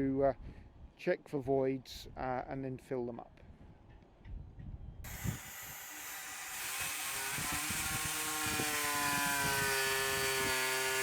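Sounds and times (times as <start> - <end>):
electric drill whining: 5.1 - 11.0.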